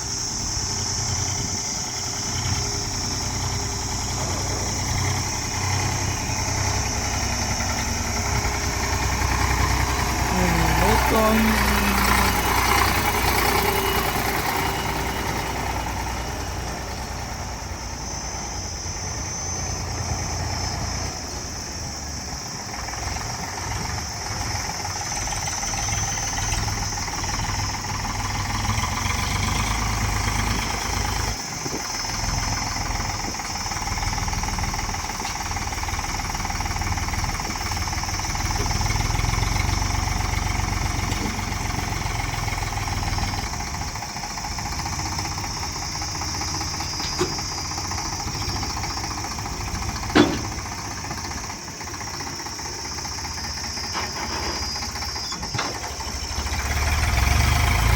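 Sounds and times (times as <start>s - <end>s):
heavy vehicle engine running: 0.0s - 57.9s.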